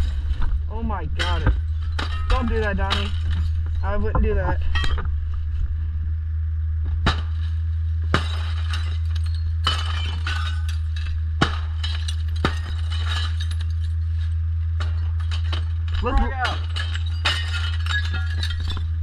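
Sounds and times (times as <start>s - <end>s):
glass smashing: 0.0s - 5.1s, 7.0s - 19.0s
steady low hum: 0.0s - 19.0s
glass shards clinking: 1.2s - 5.1s, 8.1s - 19.0s.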